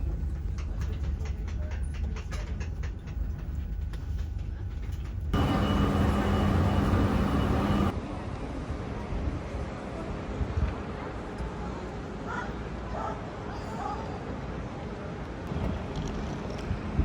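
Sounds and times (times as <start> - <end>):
train running: 0.0 - 8.0
steady whine: 5.4 - 7.9.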